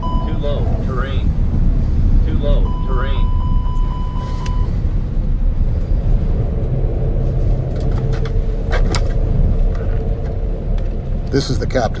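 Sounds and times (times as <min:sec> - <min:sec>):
faint steady tone: 0:00.0 - 0:01.4, 0:02.2 - 0:08.6
air rushing past cockpit: 0:00.0 - 0:11.4.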